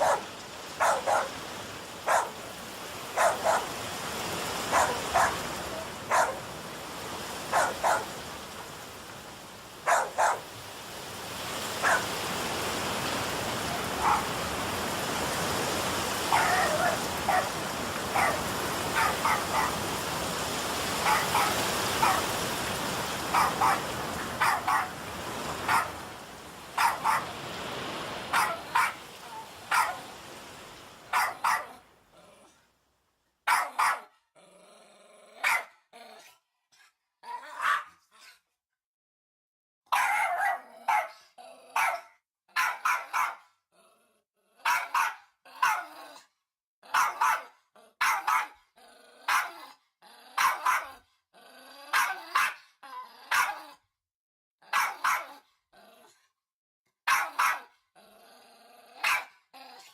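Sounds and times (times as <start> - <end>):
dogs barking: 0.0 - 1.4, 2.0 - 2.5, 3.2 - 3.8, 4.6 - 6.5, 7.4 - 8.2, 9.8 - 10.5, 11.8 - 12.2, 13.8 - 14.4, 16.2 - 20.0, 21.0 - 22.4, 23.2 - 25.0, 25.6 - 26.0, 26.8 - 27.4, 28.3 - 30.1, 31.1 - 31.8, 33.5 - 34.1, 35.4 - 35.7, 37.5 - 37.9, 39.9 - 41.2, 41.8 - 43.4, 44.6 - 45.9, 46.9 - 48.5, 49.3 - 49.6, 50.4 - 51.0, 51.9 - 52.6, 53.3 - 53.6, 54.7 - 55.4, 57.1 - 57.7, 59.0 - 59.3
heavy rain hiss: 0.0 - 31.1.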